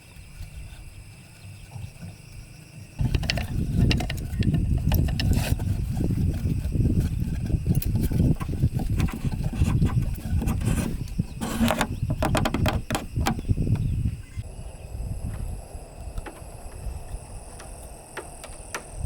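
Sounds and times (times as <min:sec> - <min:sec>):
scraping and rubbing wood: 0:00.0 - 0:14.4
irregular clicks and knocks: 0:03.0 - 0:13.9, 0:17.5 - 0:19.0.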